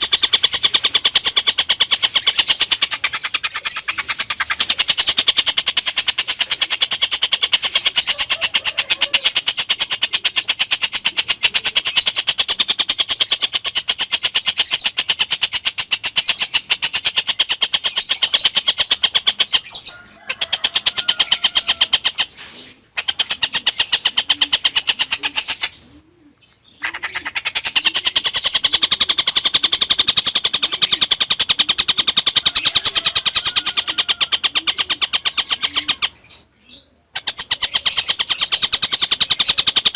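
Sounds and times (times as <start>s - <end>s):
kingfisher chattering call: 0.0s - 22.3s.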